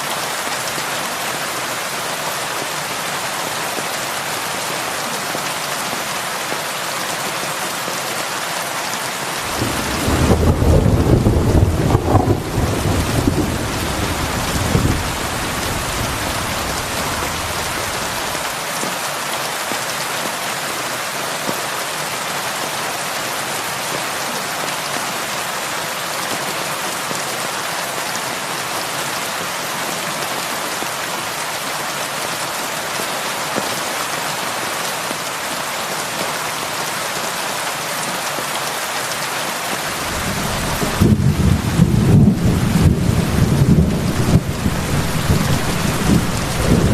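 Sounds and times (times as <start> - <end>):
heavy rain on a roof: 0.0 - 46.9
low thunder rumble: 9.4 - 18.4, 39.9 - 46.9.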